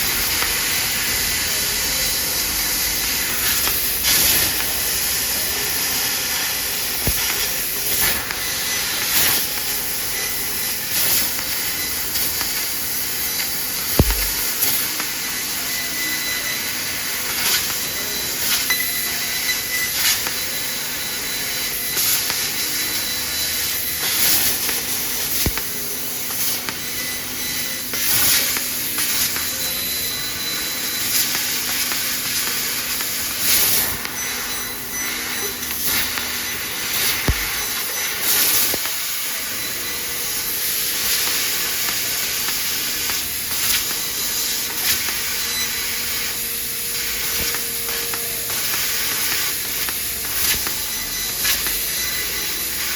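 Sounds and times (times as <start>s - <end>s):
laser cutter gas hiss: 0.0s - 52.9s
faint high whine: 13.8s - 46.4s.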